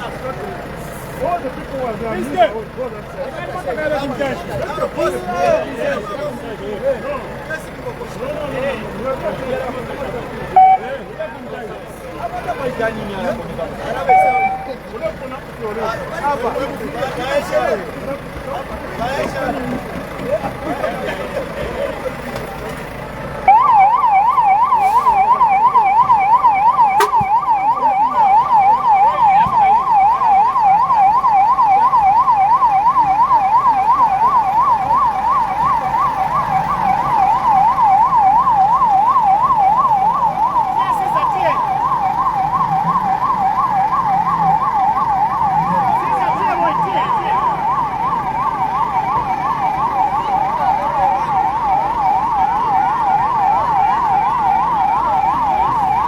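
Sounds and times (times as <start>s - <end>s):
siren yelping: 10.5s - 11.0s, 13.9s - 15.0s, 23.4s - 56.0s.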